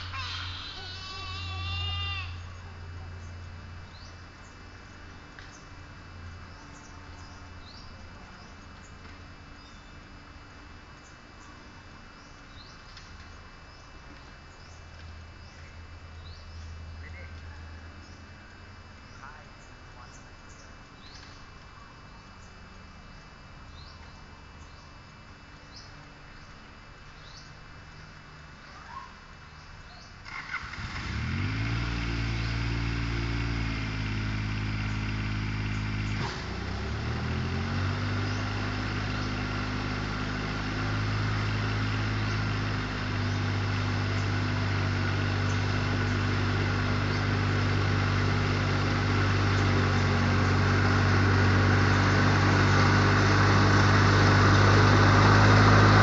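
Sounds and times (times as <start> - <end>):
tractor mower engine: 30.2 - 56.0.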